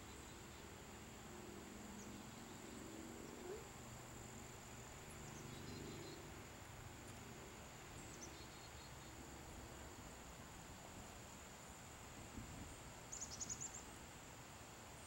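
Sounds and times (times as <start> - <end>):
quick insect chirps: 0.0 - 10.1, 13.1 - 14.0
insect drone: 0.0 - 15.0.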